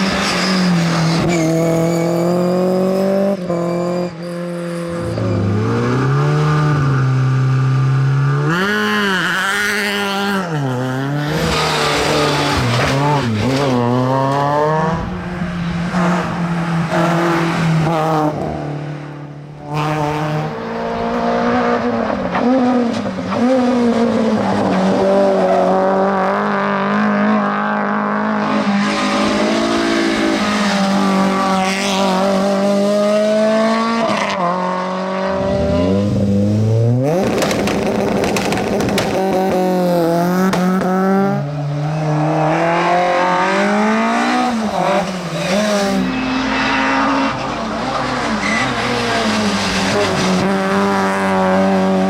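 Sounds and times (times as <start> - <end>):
tyre squeal: 0.0 - 2.5, 3.5 - 5.8, 45.0 - 50.0
rally car engines revving: 0.0 - 52.0.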